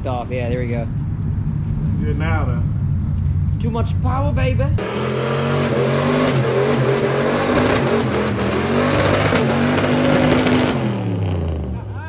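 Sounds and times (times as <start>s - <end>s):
car engine at high revs: 4.8s - 11.9s.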